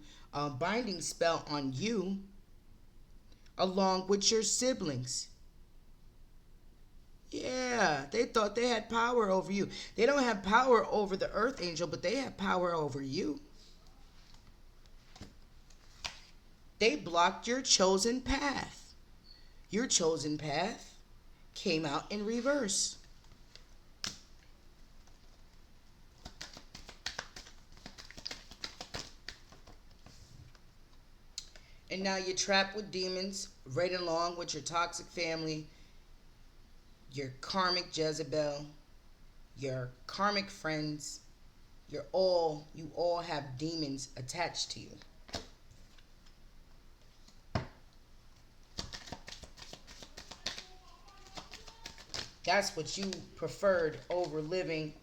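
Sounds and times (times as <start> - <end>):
cards clicking and flicking: 26.1 - 30.2, 48.7 - 53.2.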